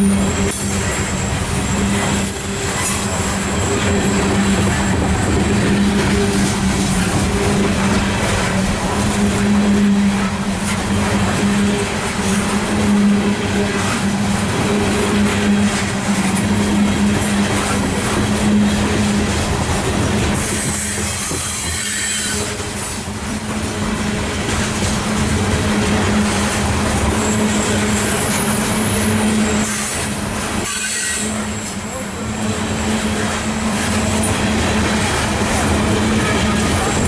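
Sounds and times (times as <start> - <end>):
high thin wheel squeal: 0.0 - 7.2, 20.4 - 22.9, 27.1 - 34.4
freight train wheels rumbling: 0.0 - 37.0.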